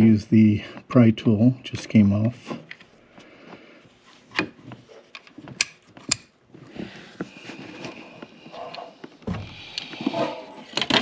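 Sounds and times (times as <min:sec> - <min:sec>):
tools clicking and knocking on metal: 0:04.4 - 0:06.3.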